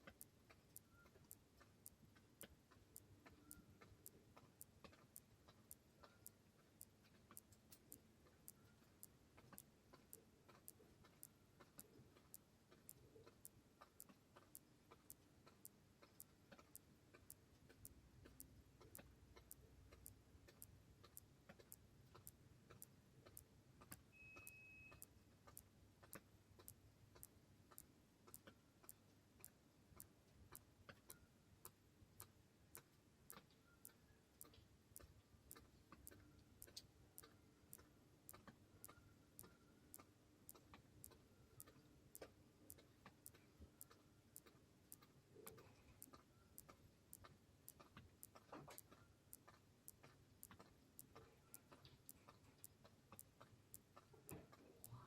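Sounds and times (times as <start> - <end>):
faint ticking: 0.0 - 55.0
high beep: 24.1 - 25.0.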